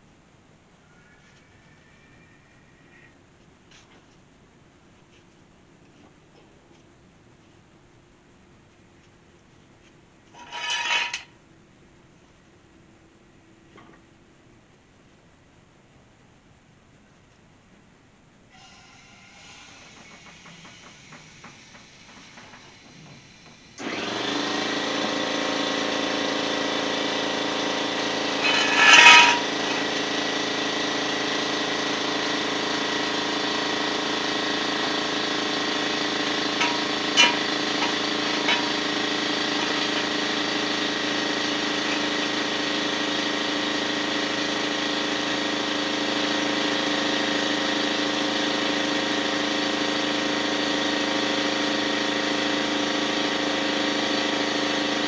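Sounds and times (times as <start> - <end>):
air hissing burst: 18.5 - 23.8
air pump buzzing drone: 18.5 - 55.0.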